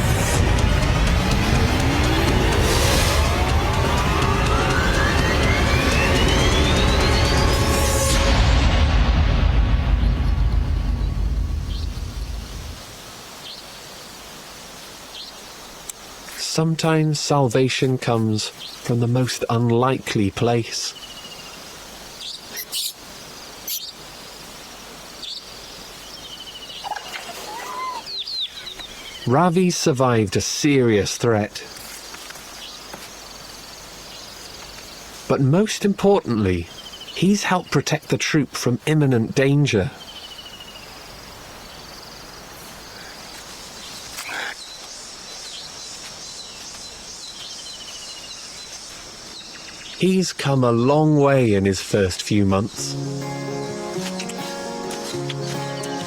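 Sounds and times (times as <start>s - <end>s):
steady forest hiss: 0.0s - 56.0s
bird chirping: 9.9s - 12.6s, 20.8s - 29.4s, 36.3s - 37.8s, 39.9s - 50.2s, 52.6s - 56.0s
insects trilling: 11.7s - 37.9s, 38.8s - 50.1s
high bird chirps: 20.9s - 23.0s
bird trilling and warbling: 22.2s - 24.0s.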